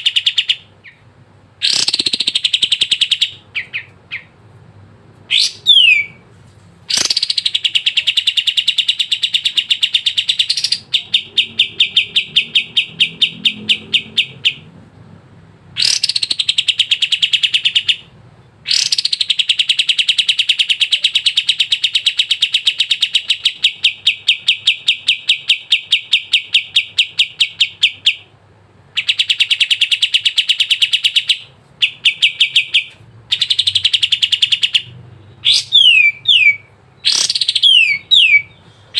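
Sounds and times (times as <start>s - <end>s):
bird singing rapid high notes: 1.6s - 4.3s, 5.3s - 6.2s, 6.9s - 14.7s, 15.8s - 18.1s, 18.7s - 28.3s, 29.0s - 38.9s.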